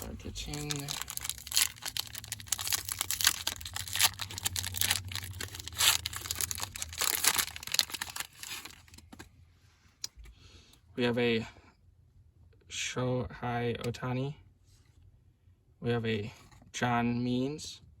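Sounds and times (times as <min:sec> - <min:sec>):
plastic wrapper tearing and crinkling: 0:00.0 - 0:09.2.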